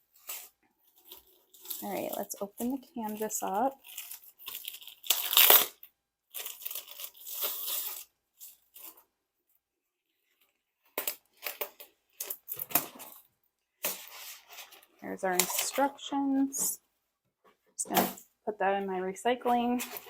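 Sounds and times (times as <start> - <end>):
packaging rustling: 0.1 - 9.0
packaging tearing and crinkling: 0.2 - 9.0.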